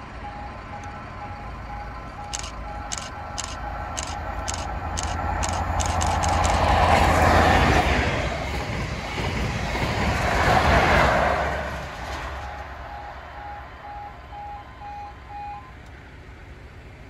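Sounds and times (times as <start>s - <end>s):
level crossing warning alarm: 0.1s - 7.1s, 12.4s - 15.9s
train rushing over rails: 2.2s - 17.0s.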